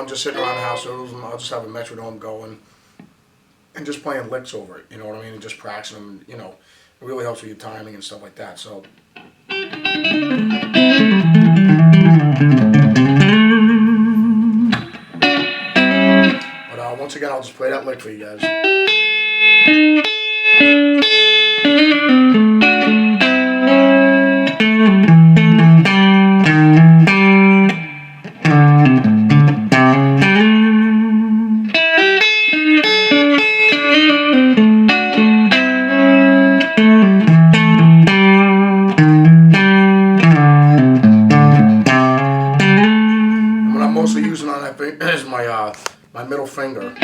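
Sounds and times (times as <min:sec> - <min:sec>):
electric guitar country lick: 0:00.0 - 0:01.6, 0:08.8 - 0:44.6, 0:45.8 - 0:47.0.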